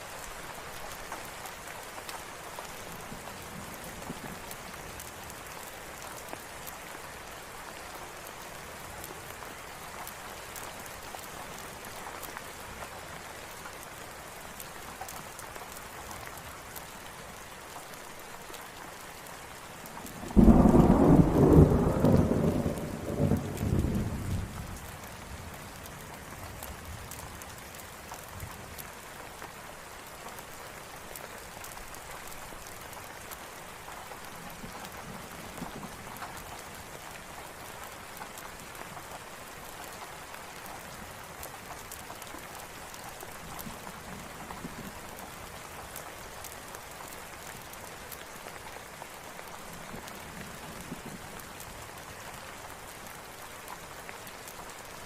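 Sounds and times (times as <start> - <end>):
steady rain falling: 0.0 - 55.0
thunderclap rumbling: 20.2 - 24.6.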